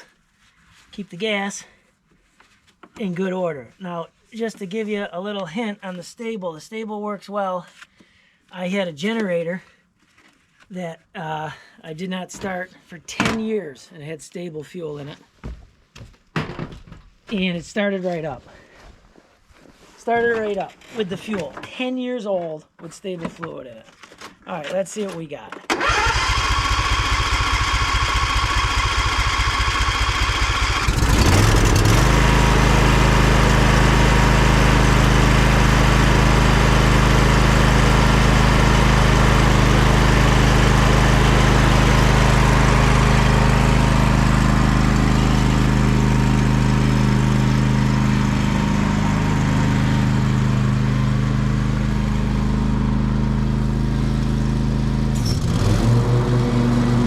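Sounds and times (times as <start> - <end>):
electric starter cranking engine: 25.7 - 57.0
lawn tractor engine running: 25.7 - 57.0.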